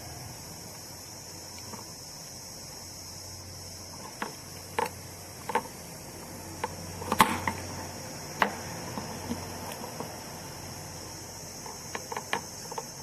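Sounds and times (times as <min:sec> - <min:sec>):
small hard parts clicking: 0:04.0 - 0:05.9, 0:11.6 - 0:13.0.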